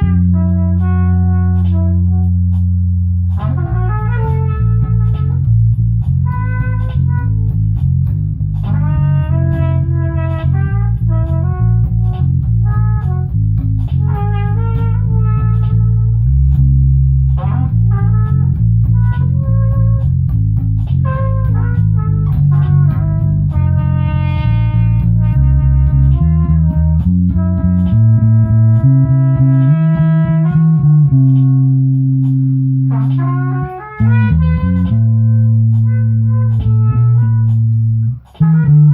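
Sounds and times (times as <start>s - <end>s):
bass guitar line: 0.0s - 38.9s
guitar playing held notes: 25.8s - 38.9s.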